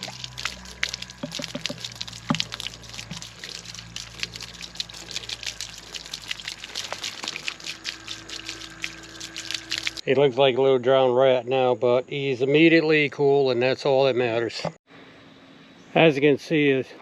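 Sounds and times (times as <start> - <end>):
water splashing and dripping: 0.0 - 10.0.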